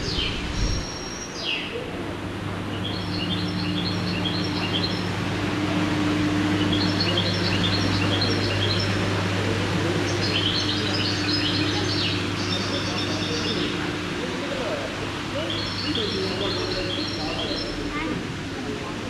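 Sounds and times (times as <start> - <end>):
bird chirping: 0.0 - 1.8, 2.7 - 5.2, 6.5 - 13.9, 15.4 - 17.8
steady low hum: 0.0 - 19.0.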